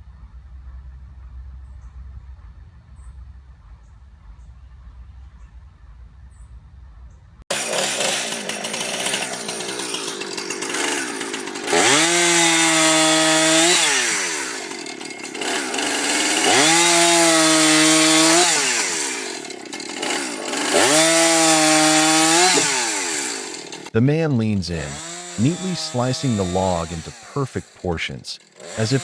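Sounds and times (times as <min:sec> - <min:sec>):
chainsaw engine revving: 0:07.5 - 0:29.0.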